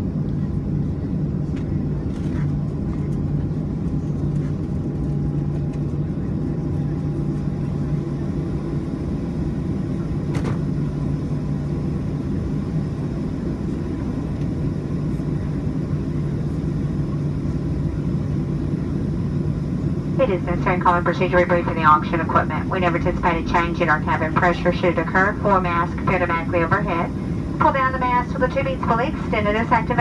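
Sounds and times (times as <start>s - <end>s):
airplane cabin rumble: 0.0s - 30.0s
faint steady whine: 6.6s - 30.0s.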